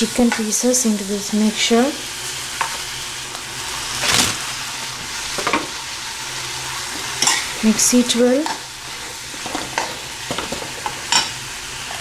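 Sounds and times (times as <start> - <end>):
chicken sizzling in a pan: 0.0 - 12.0
spoon scraping a pan: 7.0 - 7.5.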